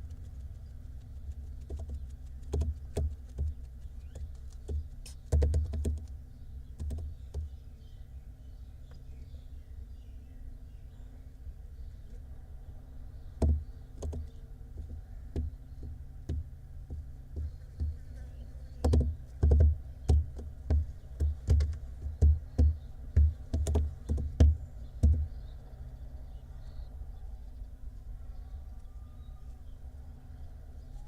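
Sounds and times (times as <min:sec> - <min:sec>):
knocks and thuds in nest box: 0:13.4 - 0:14.2, 0:18.8 - 0:25.3.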